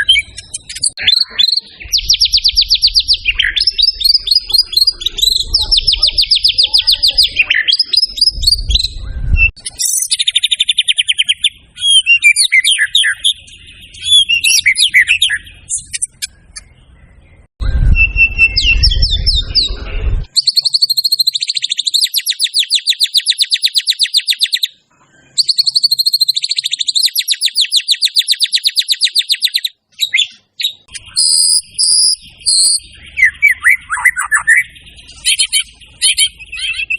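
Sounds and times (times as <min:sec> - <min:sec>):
bird singing fast trills: 0:00.0 - 0:36.9
low rumble: 0:15.5 - 0:20.3.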